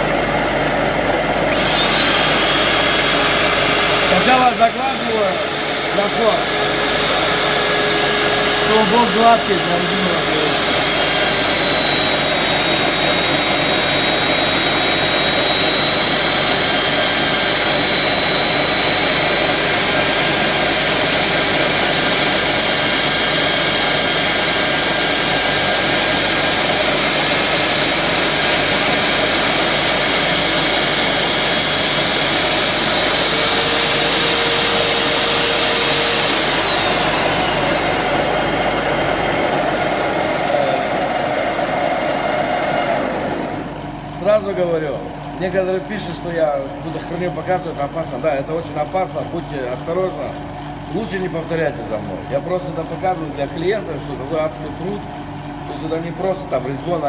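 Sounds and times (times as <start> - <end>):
high whine: 0.0 - 44.4
grinder on metal rod: 1.4 - 44.3.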